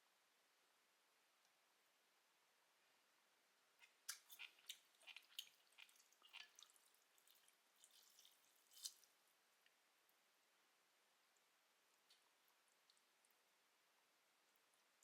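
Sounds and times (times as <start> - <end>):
wet clicks of soft food: 3.8 - 9.8, 11.3 - 13.5.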